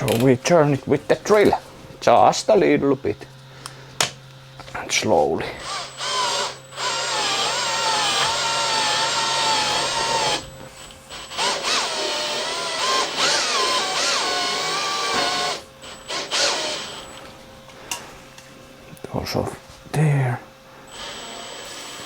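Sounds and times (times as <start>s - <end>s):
electric drill whining: 5.4s - 17.4s, 20.9s - 22.0s.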